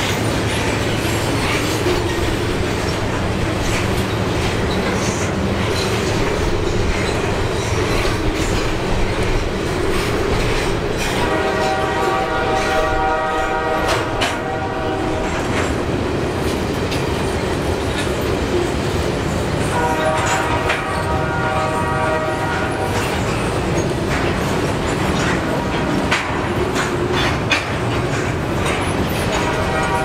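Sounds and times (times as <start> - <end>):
freight train rumbling: 0.0 - 30.0
locomotive horn: 11.0 - 15.6, 19.6 - 23.2, 29.2 - 30.0
wheel clicks over rail joints: 22.9 - 30.0.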